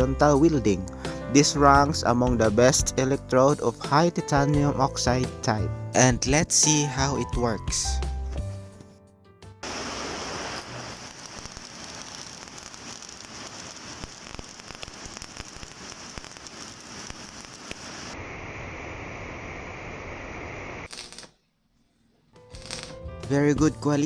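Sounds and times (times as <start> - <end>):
welding arc crackling and sizzling: 9.6 - 18.3, 19.7 - 21.4, 22.5 - 23.1.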